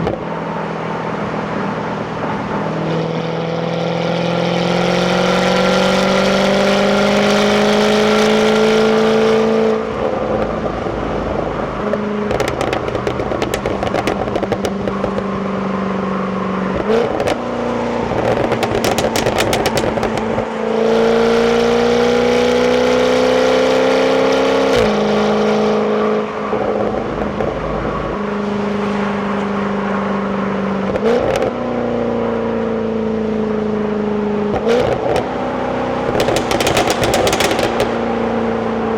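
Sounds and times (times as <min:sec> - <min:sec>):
car engine revving: 0:00.0 - 0:31.6, 0:34.4 - 0:38.9
exhaust crackling and popping: 0:10.0 - 0:15.4, 0:16.7 - 0:20.6, 0:36.0 - 0:38.9.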